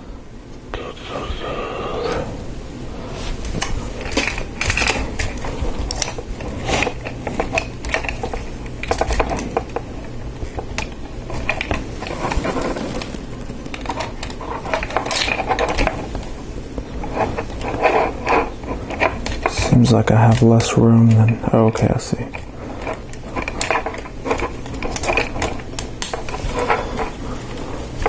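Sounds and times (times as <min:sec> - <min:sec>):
plastic pieces clicking and rattling: 0:03.6 - 0:09.8, 0:10.4 - 0:16.2, 0:17.4 - 0:27.1.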